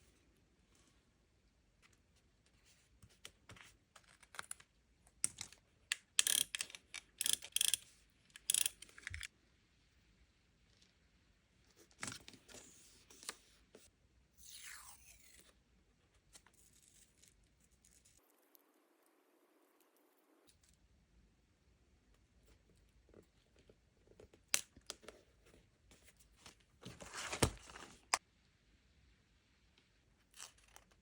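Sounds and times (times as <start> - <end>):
paper crinkling and tapping: 26.4 - 28.2.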